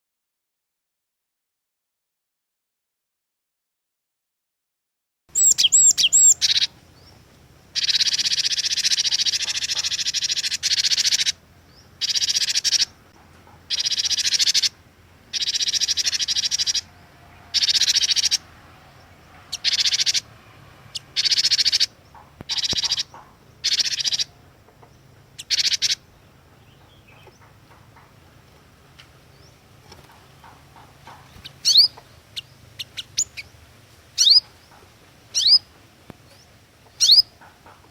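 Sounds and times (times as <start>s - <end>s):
bird whistled notes: 5.3s - 6.7s, 31.6s - 33.5s, 34.2s - 34.4s, 35.4s - 35.7s, 37.0s - 37.3s
bird harsh chattering: 5.3s - 7.1s, 7.7s - 11.4s, 12.0s - 13.0s, 13.7s - 16.9s, 17.5s - 18.5s, 19.4s - 20.3s, 20.9s - 24.4s, 25.3s - 27.6s, 30.1s - 33.6s, 34.2s - 34.6s, 35.3s - 35.7s, 37.0s - 37.6s.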